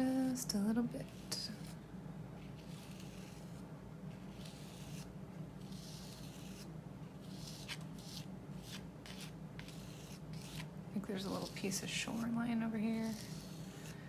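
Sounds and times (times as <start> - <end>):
paintbrush strokes on paper: 5.7 - 14.0.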